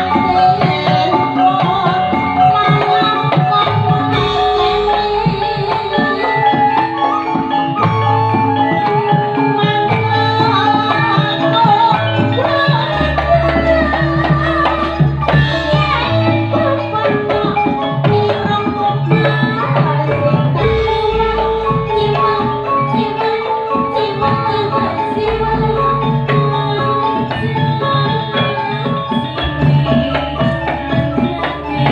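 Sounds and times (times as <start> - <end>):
hand drumming: 0.0 - 31.9
instrumental music with bass line: 0.0 - 31.9.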